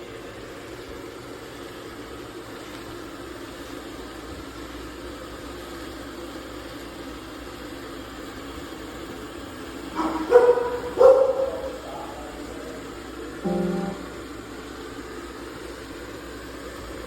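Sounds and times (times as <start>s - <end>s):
dog barking: 9.9s - 12.6s
robot vacuum humming: 11.7s - 14.4s.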